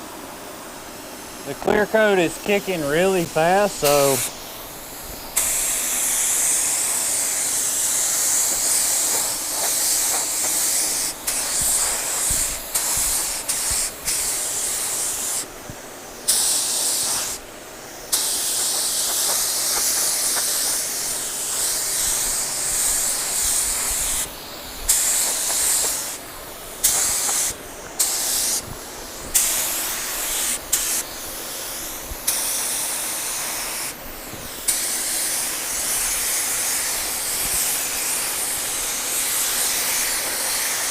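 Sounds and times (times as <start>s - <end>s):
hiss of paint spray: 0.0s - 40.9s.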